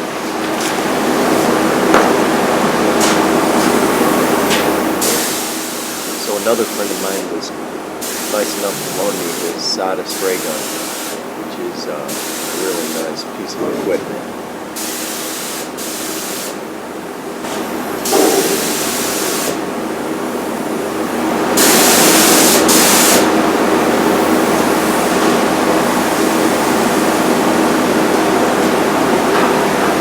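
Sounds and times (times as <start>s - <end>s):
steady machine hum: 0.0s - 15.3s, 16.6s - 30.0s
paint spray gun hissing: 3.0s - 13.3s, 14.7s - 16.6s, 18.0s - 19.7s, 21.5s - 25.2s.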